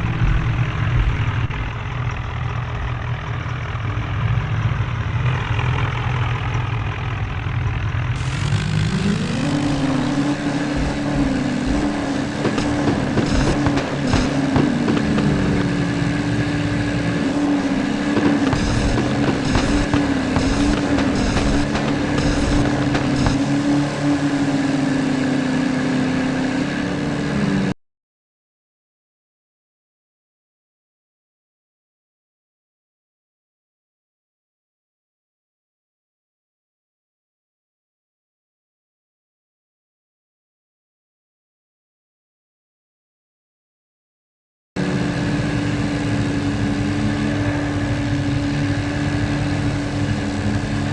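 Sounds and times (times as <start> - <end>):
tractor diesel engine running: 0.0 - 27.7, 44.8 - 50.9.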